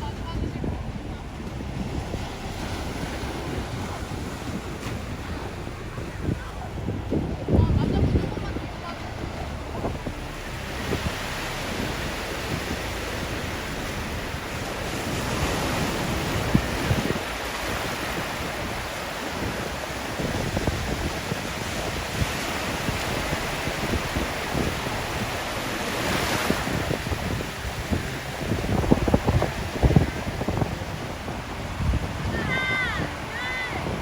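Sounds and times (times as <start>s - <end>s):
surf washing onto beach: 0.0s - 34.0s
wind buffeting microphone: 0.0s - 34.0s.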